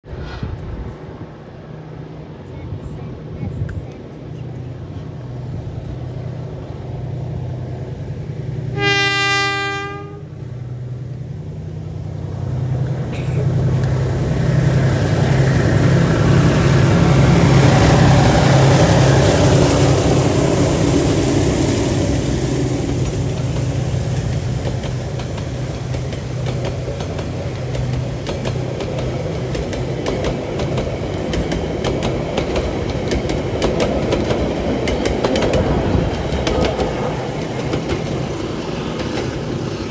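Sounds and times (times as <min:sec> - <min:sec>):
diesel locomotive engines: 0:00.0 - 0:39.9
locomotive horn blast: 0:08.7 - 0:10.4
wheels clicking over rail joints: 0:22.9 - 0:39.8.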